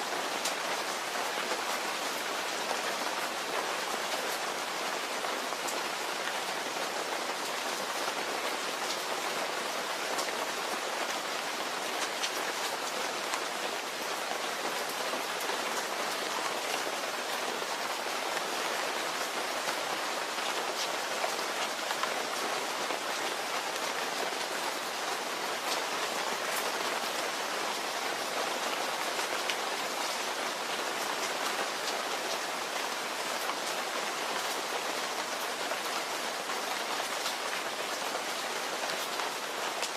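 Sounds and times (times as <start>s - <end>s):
rain falling: 0.0s - 39.9s
raindrops ticking on a surface: 0.1s - 39.9s.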